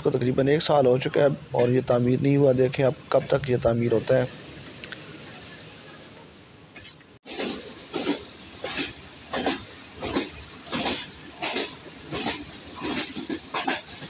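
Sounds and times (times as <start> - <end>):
train wheels clattering over rail joints: 6.8 - 14.0.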